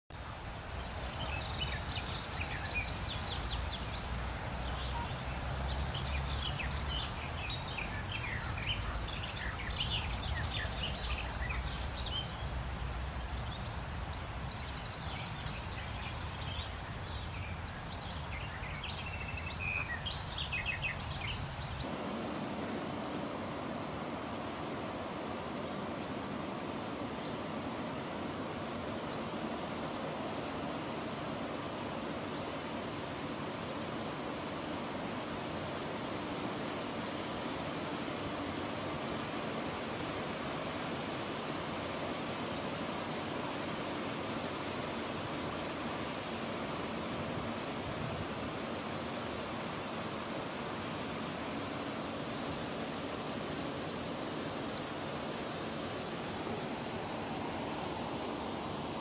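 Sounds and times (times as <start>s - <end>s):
wild birds chirping and trilling: 0.1s - 43.6s
steady hiss: 0.2s - 59.0s.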